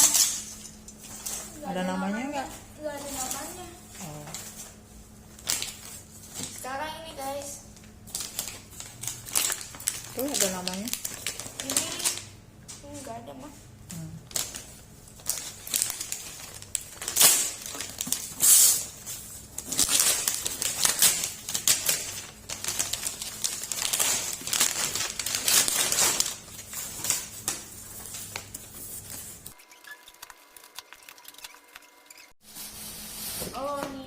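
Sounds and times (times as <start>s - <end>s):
wrapping paper tearing: 2.8s - 6.7s, 8.1s - 12.3s, 14.3s - 32.2s.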